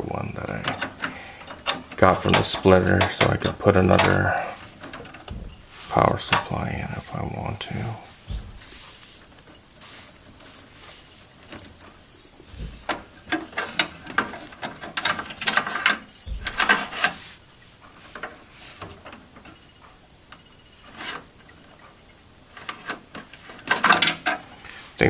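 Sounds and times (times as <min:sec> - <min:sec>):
dull thumps: 0:00.0 - 0:13.5, 0:16.2 - 0:17.3
cables and connectors rustling clicking: 0:00.0 - 0:25.0.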